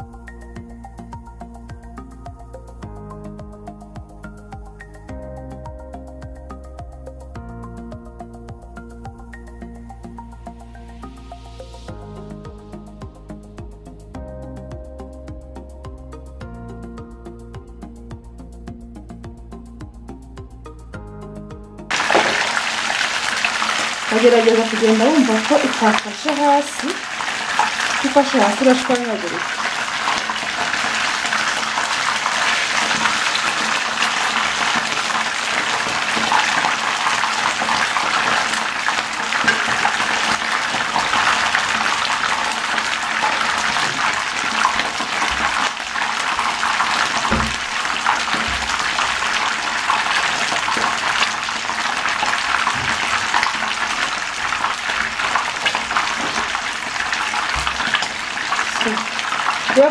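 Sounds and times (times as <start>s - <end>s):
fish sizzling in hot oil: 21.9s - 59.9s.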